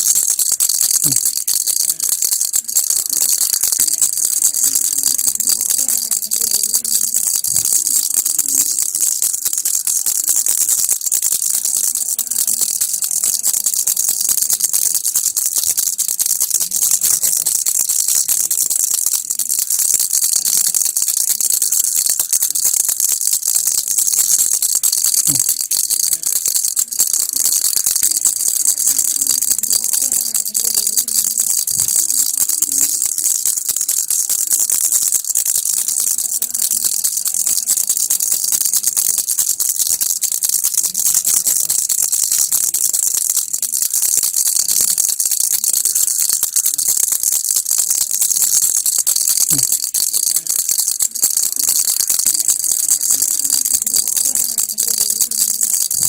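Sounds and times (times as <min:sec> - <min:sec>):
baby rattle shaken: 0:00.0 - 0:56.0.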